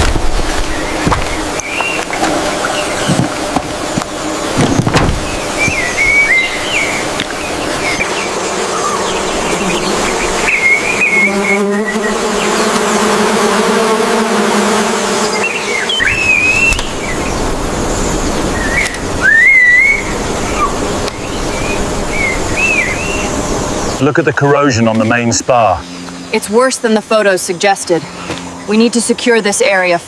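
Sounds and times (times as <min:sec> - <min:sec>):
whistled bird calls: 0:05.6 - 0:07.0, 0:09.7 - 0:12.2, 0:15.4 - 0:17.3, 0:18.5 - 0:23.3.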